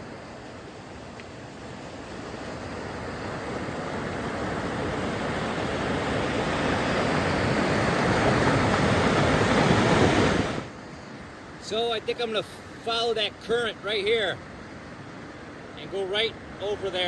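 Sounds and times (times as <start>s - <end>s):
whitewater rushing: 1.6s - 17.0s.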